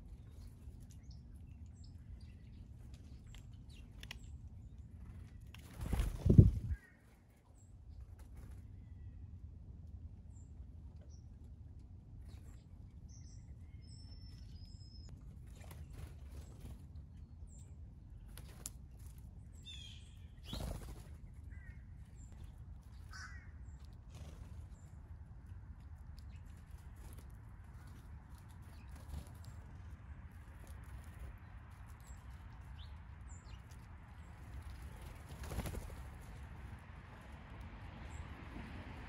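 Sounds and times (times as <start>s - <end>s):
birds chirping: 12.2s - 37.3s.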